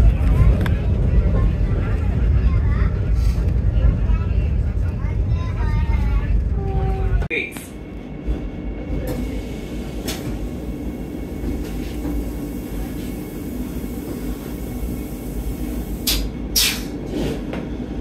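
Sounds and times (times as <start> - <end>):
train coach rumble: 0.0 - 18.0
brief hissy bursts: 16.0 - 16.9.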